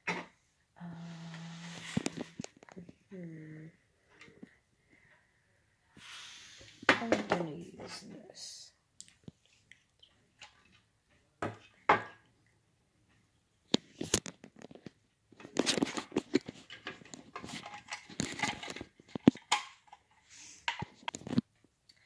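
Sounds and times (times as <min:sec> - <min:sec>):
rustling and scraping: 0:01.0 - 0:03.1, 0:13.7 - 0:21.6
plastic parts knocking and clicking: 0:13.7 - 0:21.6.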